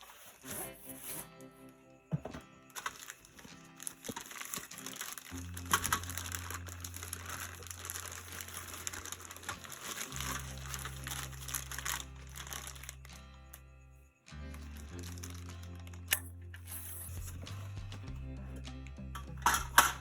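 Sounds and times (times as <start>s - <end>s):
packaging crinkling: 2.7s - 13.3s, 14.5s - 16.2s
background music with bass notes: 4.9s - 20.0s.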